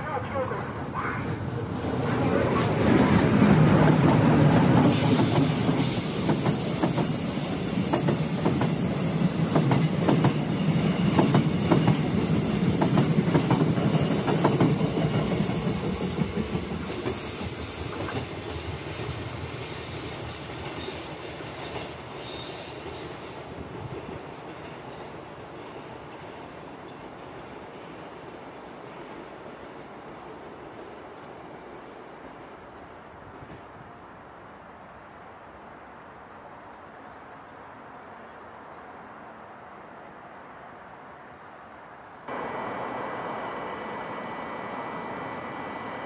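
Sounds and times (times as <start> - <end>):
train wheels clattering: 1.8 - 27.6
train wheels squealing: 4.9 - 24.0.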